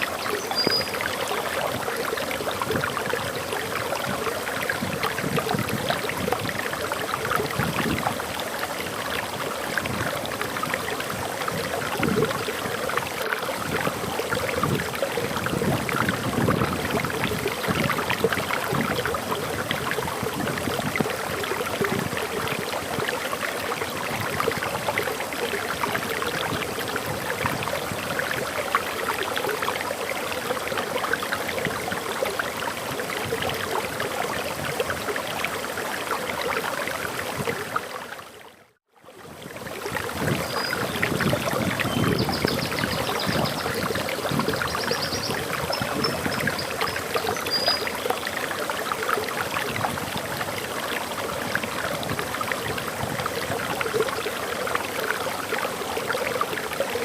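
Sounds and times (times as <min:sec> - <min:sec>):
waterfall rushing and splashing: 0:00.0 - 0:38.4, 0:39.4 - 0:57.0
faint high bird chirps: 0:00.2 - 0:01.0, 0:44.6 - 0:48.0.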